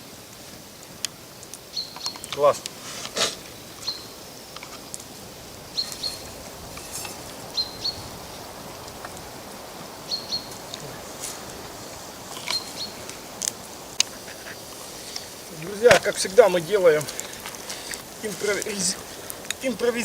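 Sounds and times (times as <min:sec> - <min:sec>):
campfire crackling: 0:00.0 - 0:20.0
steady outdoor hiss: 0:00.0 - 0:20.0
small bird chirping: 0:01.7 - 0:02.6, 0:03.4 - 0:05.0, 0:05.7 - 0:09.1, 0:10.0 - 0:11.5, 0:12.3 - 0:13.2.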